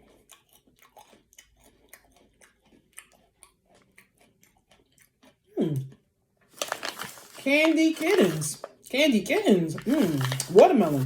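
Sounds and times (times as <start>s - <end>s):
crunchy chewing: 0.0s - 6.0s.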